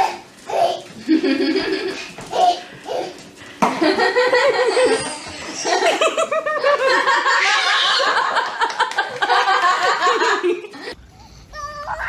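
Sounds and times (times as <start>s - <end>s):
people laughing loudly: 3.8s - 11.0s.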